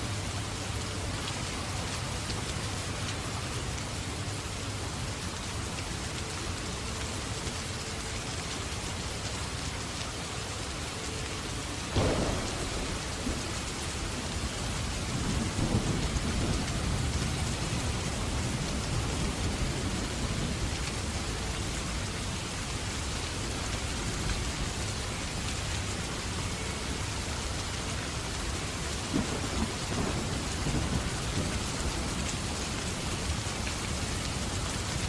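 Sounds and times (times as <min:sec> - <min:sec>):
steady rain: 0:00.0 - 0:35.0
sharp thunderclap: 0:11.9 - 0:17.4
low rolling thunder: 0:11.9 - 0:21.2, 0:28.9 - 0:35.0.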